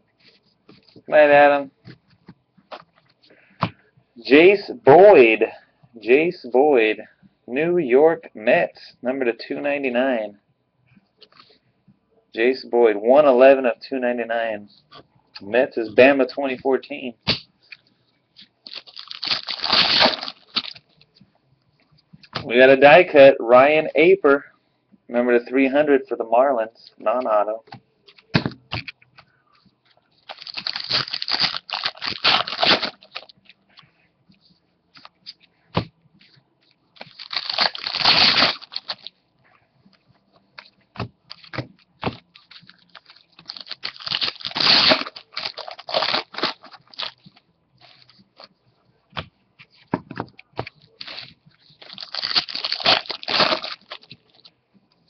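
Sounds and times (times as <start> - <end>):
card pack wrappers tearing: 18.6 - 20.8, 30.2 - 33.3, 37.0 - 39.1, 41.3 - 48.2, 51.0 - 54.5.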